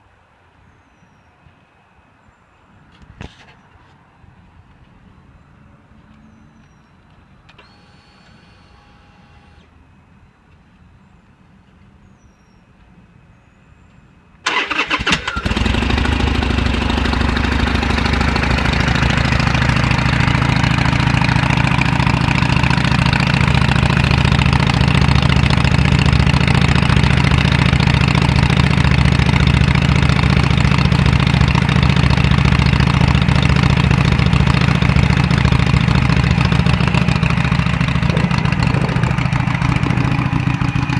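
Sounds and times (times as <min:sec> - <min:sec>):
motorcycle starter cranking: 0:14.5 - 0:17.2
motorcycle engine idling: 0:14.5 - 0:40.9.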